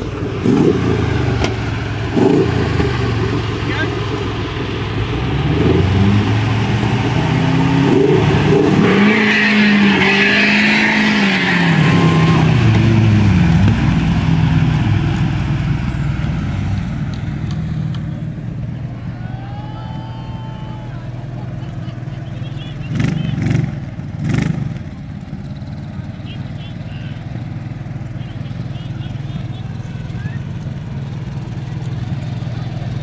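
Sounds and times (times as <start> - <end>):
vehicle engine revving hard: 0.0 - 4.1, 5.0 - 16.6, 22.8 - 24.8.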